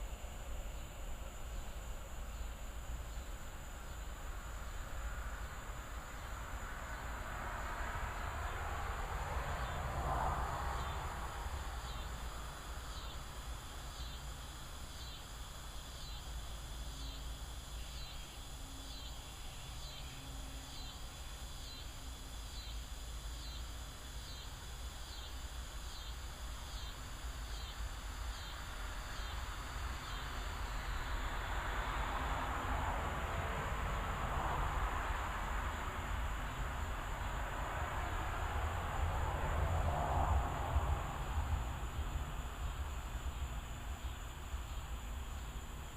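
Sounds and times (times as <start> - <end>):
rhythmic pulsed insect chirp: 0.0 - 45.9
high-pitched insect drone: 10.7 - 32.0.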